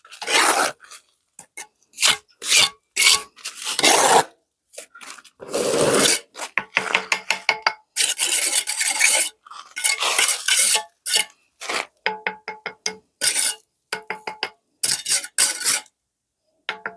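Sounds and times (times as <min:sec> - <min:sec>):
rasping scraping strokes: 0:00.0 - 0:01.0, 0:02.0 - 0:04.3, 0:08.0 - 0:11.9, 0:13.2 - 0:13.6.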